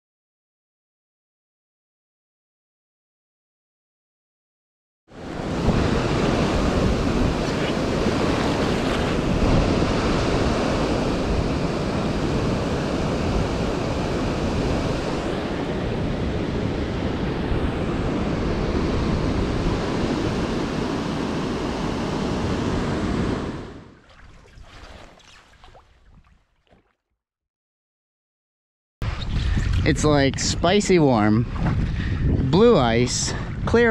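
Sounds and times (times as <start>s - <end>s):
waves rushing: 5.1s - 26.8s
wind buffeting microphone: 5.2s - 26.4s, 29.0s - 33.9s.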